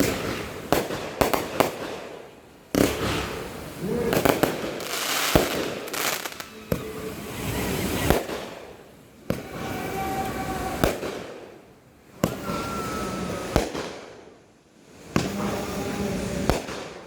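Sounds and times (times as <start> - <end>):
fireworks bangs: 0.0 - 14.4, 15.0 - 17.0
fireworks crackling hiss: 0.0 - 17.0.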